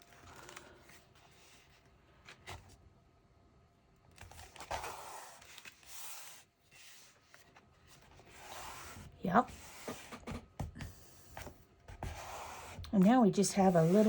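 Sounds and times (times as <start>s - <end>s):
paper rustling and rubbing: 4.2s - 14.0s.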